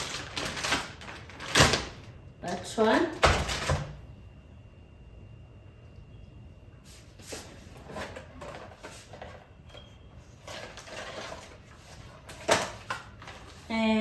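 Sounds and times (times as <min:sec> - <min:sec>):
grocery wrapping rustling: 0:00.0 - 0:02.9, 0:06.9 - 0:13.9.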